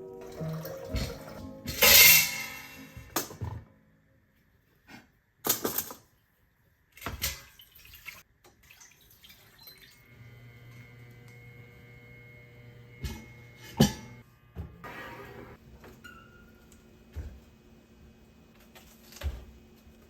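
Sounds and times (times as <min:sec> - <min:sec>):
kitchen noise bursts: 0:00.0 - 0:03.4
appliance humming: 0:09.8 - 0:20.0.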